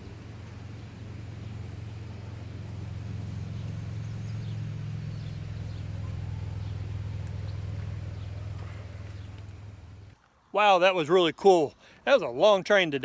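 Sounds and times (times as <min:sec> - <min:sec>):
freight train rumbling past: 0:00.0 - 0:10.2.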